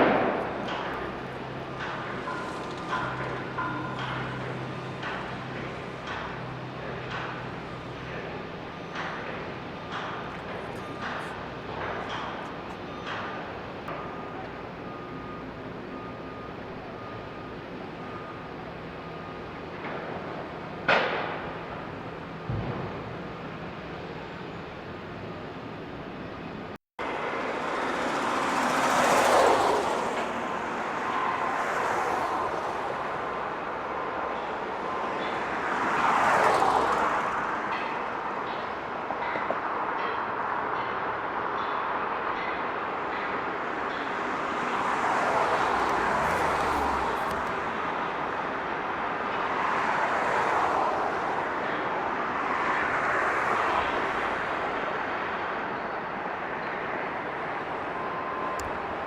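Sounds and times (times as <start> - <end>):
vehicles passing: 0.0 - 59.0
vehicle passing by: 44.8 - 48.1.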